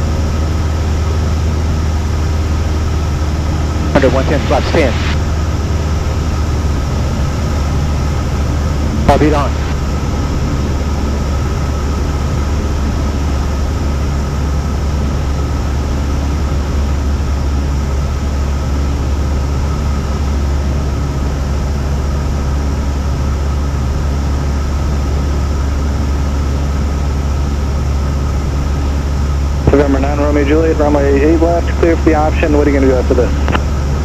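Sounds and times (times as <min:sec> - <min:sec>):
plane engine and propeller droning: 0:00.0 - 0:34.0.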